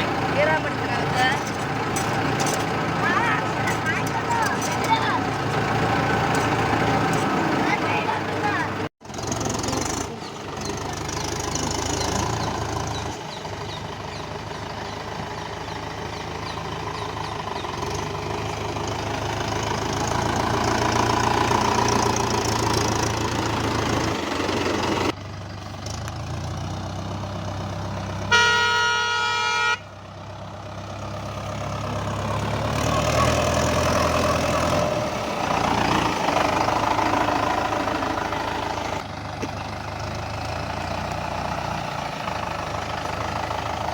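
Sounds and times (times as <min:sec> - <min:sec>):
tractor diesel engine running: 0:00.0 - 0:43.9
horn blast: 0:28.3 - 0:29.8.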